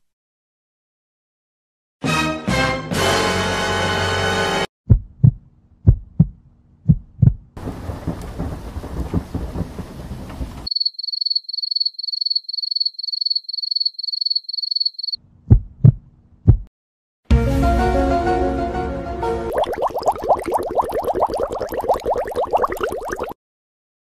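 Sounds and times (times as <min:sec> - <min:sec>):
heartbeat thumping: 0:04.9 - 0:09.8, 0:15.5 - 0:16.7
rushing noise with low thuds: 0:07.2 - 0:10.7
crickets chirping: 0:10.7 - 0:15.2.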